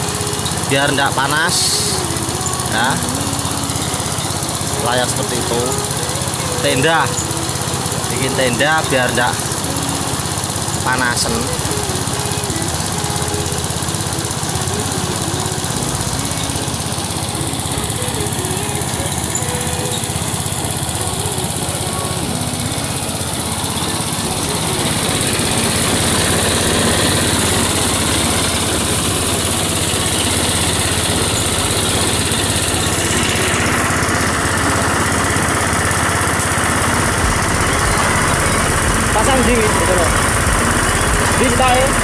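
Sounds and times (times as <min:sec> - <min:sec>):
small petrol engine running: 0:00.0 - 0:42.0.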